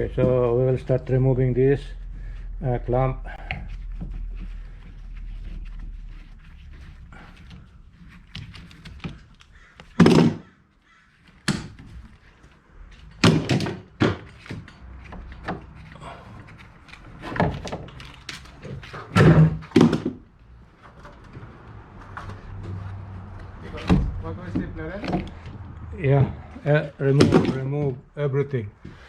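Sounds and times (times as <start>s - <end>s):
clamps knocking and clunking: 12.9s - 15.8s, 17.1s - 20.2s.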